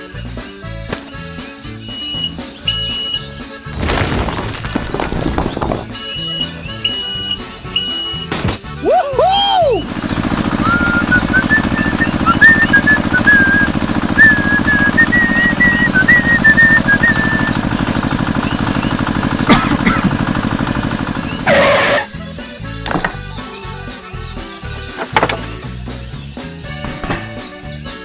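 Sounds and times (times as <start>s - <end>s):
rapid mechanical buzz: 3.7s - 8.0s, 9.8s - 22.2s
person whistling a tune: 6.1s - 9.9s, 10.5s - 17.6s.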